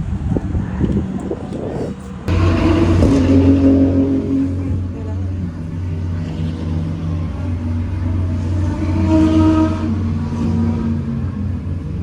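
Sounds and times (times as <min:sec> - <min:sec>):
steady low rumble: 0:00.0 - 0:08.9
race car engine passing: 0:02.2 - 0:12.0.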